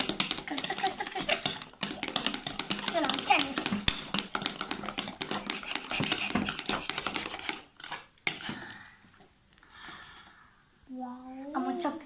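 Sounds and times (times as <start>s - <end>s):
spoons clinking against bowls: 0.0s - 8.6s.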